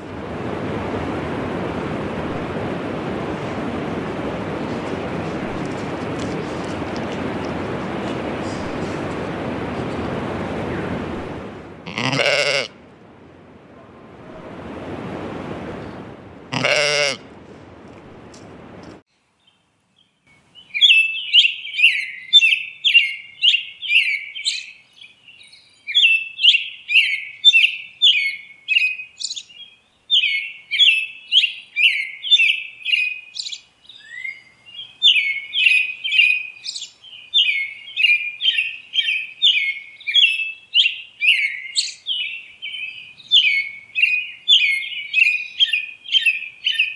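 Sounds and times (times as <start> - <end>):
rough background noise: 4.6 - 10.2
birds chirping: 11.9 - 12.8, 15.7 - 17.2
goat bleating: 11.9 - 12.8, 16.5 - 17.2.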